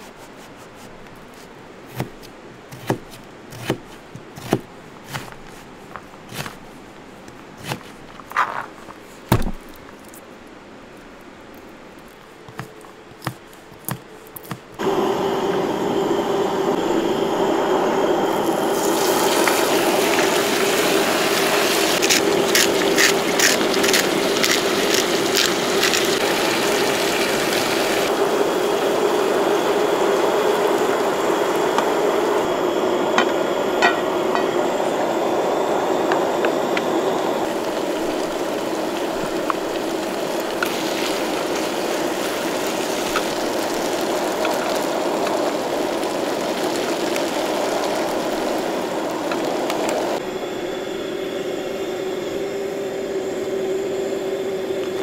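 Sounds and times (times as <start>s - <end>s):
steady hum: 5.6s - 55.0s
chicken sizzling in oil: 18.3s - 32.4s, 36.9s - 50.2s.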